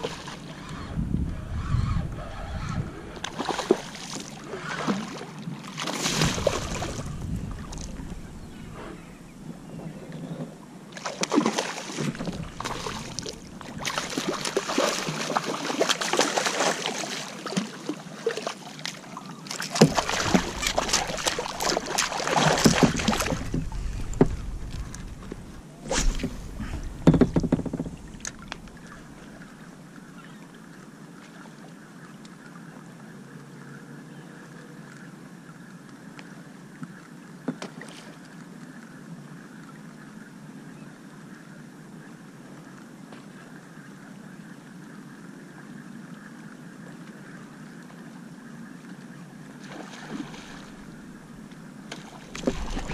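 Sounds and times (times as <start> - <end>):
water splashing around kayak: 0.0 - 0.9, 3.0 - 32.4, 36.8 - 38.8, 46.2 - 52.9.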